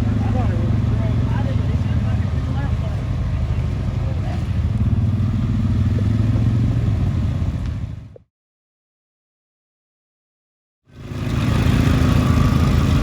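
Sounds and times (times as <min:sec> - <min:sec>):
car engine rumbling: 0:00.0 - 0:08.2.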